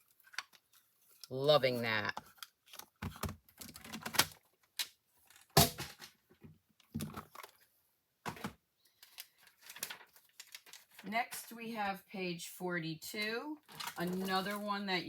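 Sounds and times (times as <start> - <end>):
paper rustling: 9.0 - 11.1.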